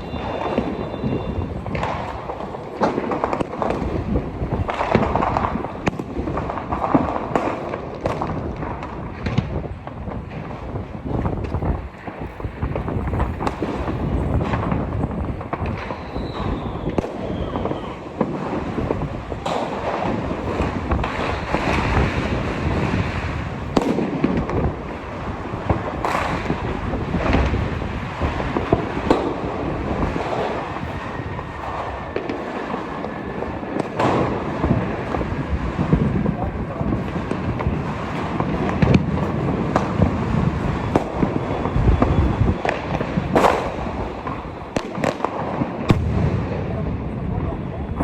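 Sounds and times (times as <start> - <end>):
firework whistle falling in pitch: 0.0 - 2.2, 15.8 - 18.0
crackle of distant fireworks: 0.0 - 48.0
firecracker bangs: 0.0 - 48.0.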